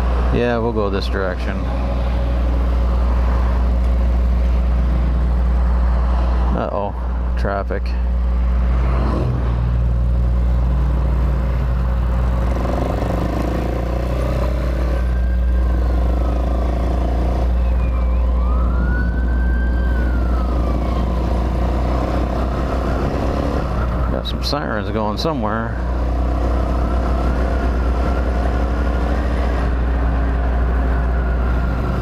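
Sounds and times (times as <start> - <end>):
distant emergency siren wailing: 14.4 - 24.3, 29.4 - 32.0.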